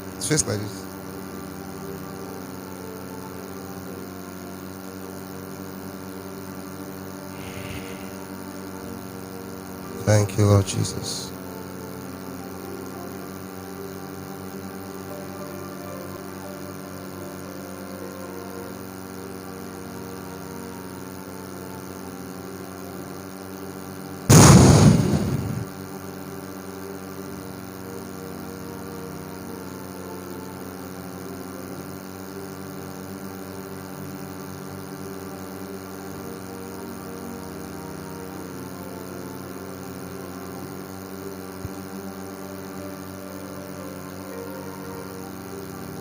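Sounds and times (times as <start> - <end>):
steady hum of sustained tones: 0.0 - 46.0
loud sudden burst: 7.3 - 8.3, 24.3 - 25.7.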